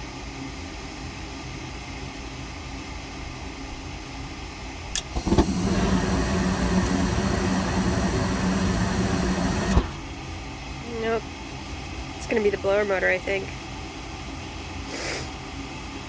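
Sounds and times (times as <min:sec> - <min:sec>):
furnace low hum: 0:00.0 - 0:16.0
ignition click: 0:05.0 - 0:10.2
rush of burning gas: 0:05.0 - 0:10.3, 0:14.8 - 0:15.4.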